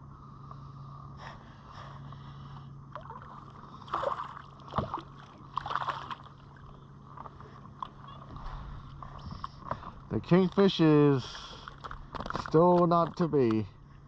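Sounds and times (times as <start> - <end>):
steady low hum: 0.0 - 14.0
water splashing at kayak: 2.9 - 7.4.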